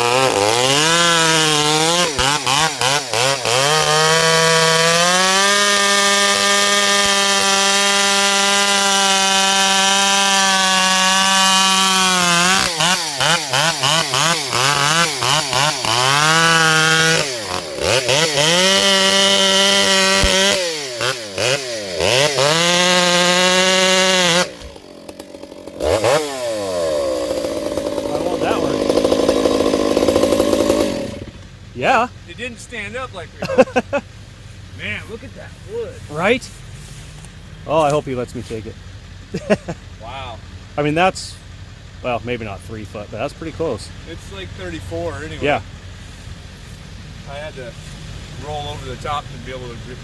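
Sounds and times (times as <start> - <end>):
chainsaw cutting log: 0.0 - 31.5.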